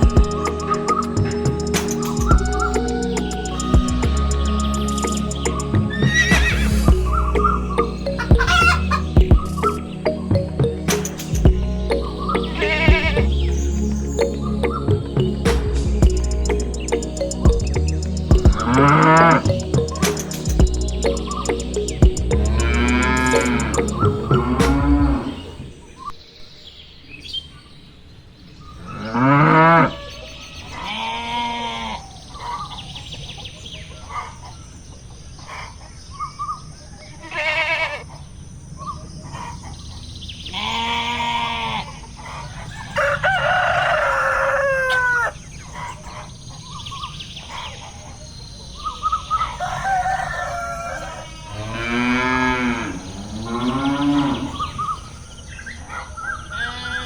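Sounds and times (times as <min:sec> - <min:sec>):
chickens clucking: 0:00.0 - 0:13.3
rooster crowing: 0:08.4 - 0:09.0, 0:42.6 - 0:45.4, 0:49.4 - 0:53.1
cattle mooing: 0:51.5 - 0:54.8.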